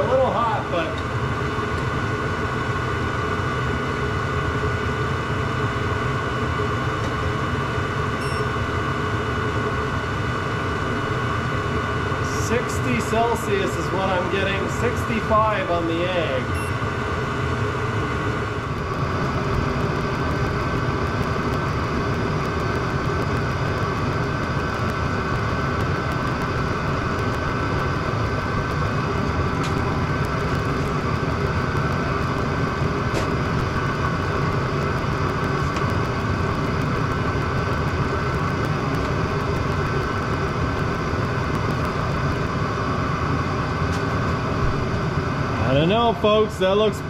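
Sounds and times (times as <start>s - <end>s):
heater blower whirring: 0.0s - 47.0s
heater burner roaring: 0.0s - 47.0s.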